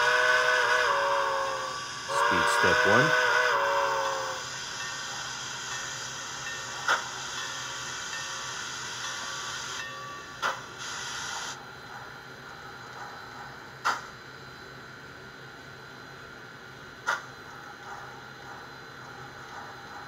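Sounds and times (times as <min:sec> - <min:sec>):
steady steam hiss: 0:00.0 - 0:09.8, 0:10.4 - 0:11.6
chime steam whistle: 0:00.0 - 0:11.1
sharp steam chuff: 0:02.0 - 0:03.9.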